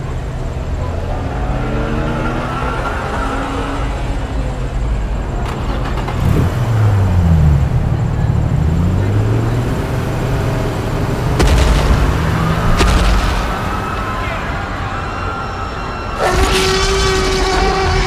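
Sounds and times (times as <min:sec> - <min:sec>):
car engine revving: 0:00.0 - 0:18.0
sharp bangs: 0:11.3 - 0:18.0.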